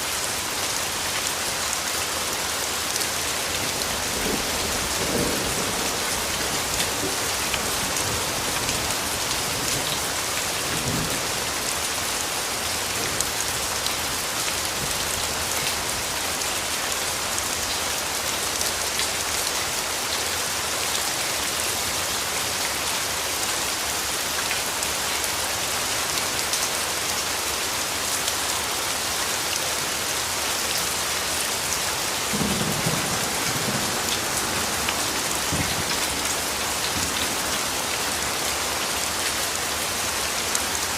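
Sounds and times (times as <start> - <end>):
rain pattering on leaves: 0.0 - 40.9
distant thunder rumble: 32.3 - 37.4.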